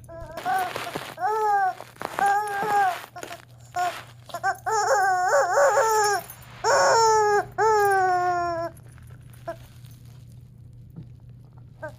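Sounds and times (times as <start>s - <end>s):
rubber chicken toy squawking: 0.4s - 8.7s.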